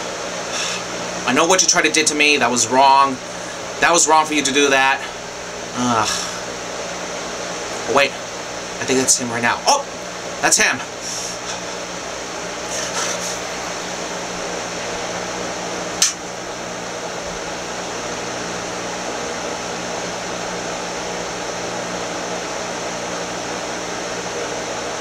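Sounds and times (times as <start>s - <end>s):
fan whirring hum: 0.0s - 25.0s
sharp click: 16.0s - 16.2s.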